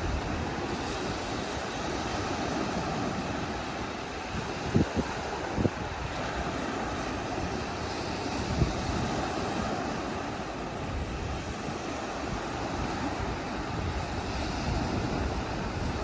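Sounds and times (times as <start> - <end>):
sea surf washing on beach: 0.0 - 16.0
wind buffeting microphone: 0.0 - 16.0.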